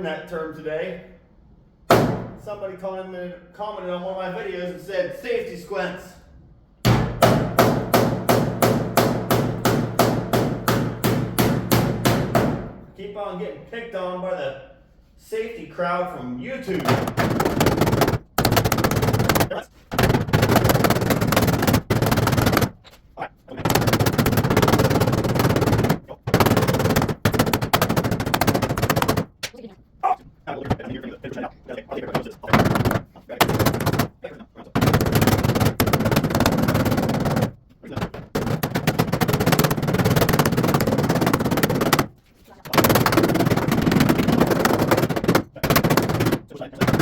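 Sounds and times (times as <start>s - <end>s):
power tool rattling on sheet metal: 16.8s - 22.8s, 23.6s - 29.4s, 32.5s - 34.2s, 34.8s - 42.1s, 42.7s - 47.0s.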